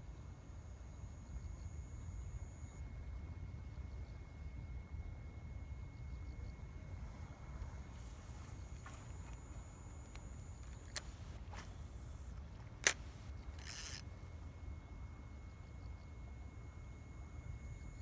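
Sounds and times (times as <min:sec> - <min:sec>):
sharp clicks: 0:08.6 - 0:14.2
brief hiss: 0:10.8 - 0:14.1.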